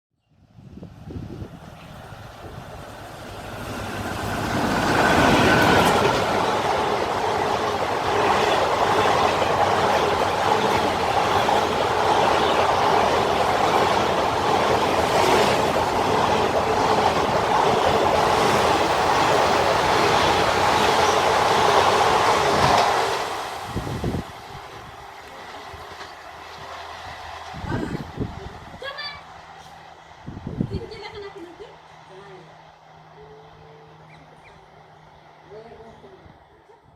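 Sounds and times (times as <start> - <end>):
train wheels rumbling on track: 0.6 - 36.9
wheels clacking over rail joints: 1.8 - 23.5.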